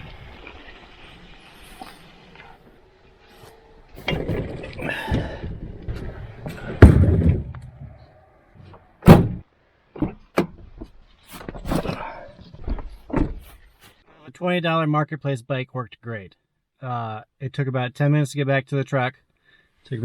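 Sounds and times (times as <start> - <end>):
knocks and thumps: 4.1 - 8.1, 9.0 - 9.4, 10.0 - 13.6
heavy slam: 6.5 - 8.1, 9.0 - 9.4.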